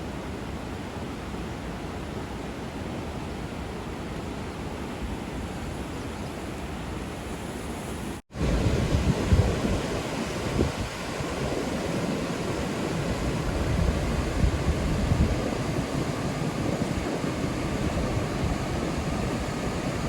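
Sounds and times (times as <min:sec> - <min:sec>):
river water rushing at a weir: 0:00.0 - 0:20.0
wind buffeting microphone: 0:08.3 - 0:20.0.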